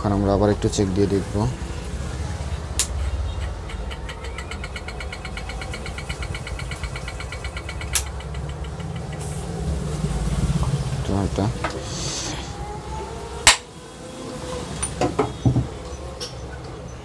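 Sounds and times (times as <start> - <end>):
ceiling fan humming and ticking: 0.0 - 17.0
sharp clicks: 2.8 - 9.4.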